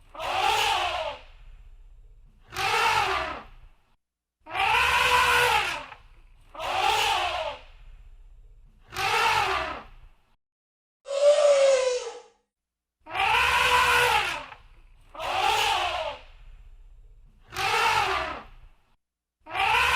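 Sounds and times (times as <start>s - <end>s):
elephant trumpeting: 4.6s - 5.9s, 13.2s - 14.5s.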